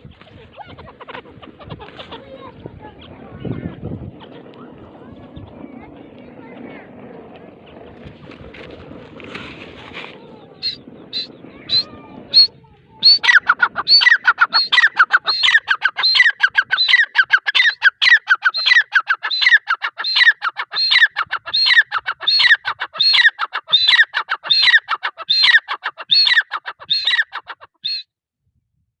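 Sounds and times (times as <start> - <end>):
bird ringing call: 10.6 - 21.0.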